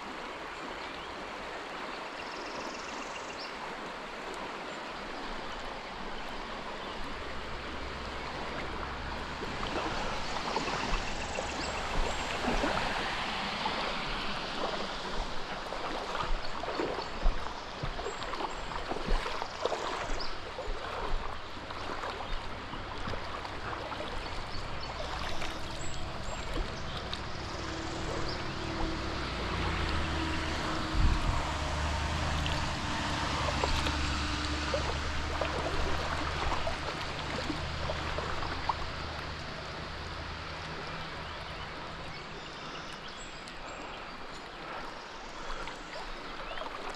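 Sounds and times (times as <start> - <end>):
creek water rushing: 0.0 - 46.9.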